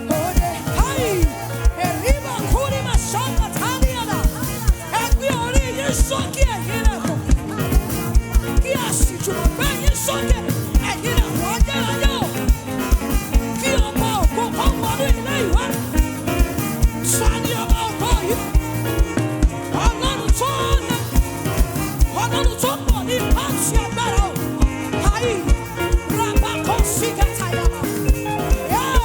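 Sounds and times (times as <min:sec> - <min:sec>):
live band playing worship music: 0:00.0 - 0:29.0.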